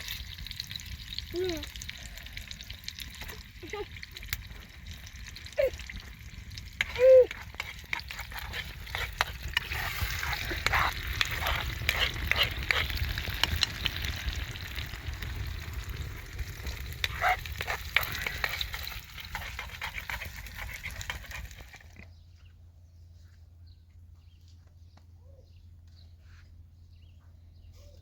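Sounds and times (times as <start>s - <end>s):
food sizzling in a frying pan: 0.0s - 21.8s
stirring clicks: 2.9s - 15.5s, 16.4s - 22.0s.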